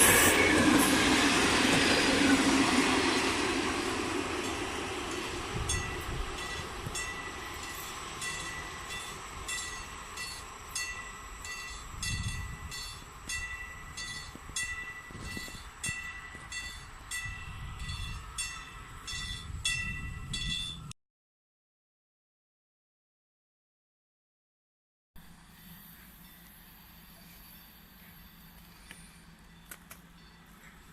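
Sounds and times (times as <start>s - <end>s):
low train rumble: 0.0s - 20.9s, 25.2s - 30.9s
wheels clicking over rail joints: 26.0s - 30.9s.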